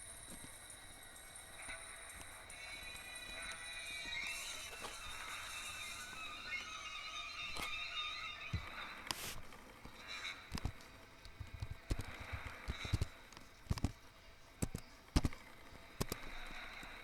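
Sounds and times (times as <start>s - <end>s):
sharp knocks and clicks: 9.9s - 14.0s, 14.6s - 15.4s.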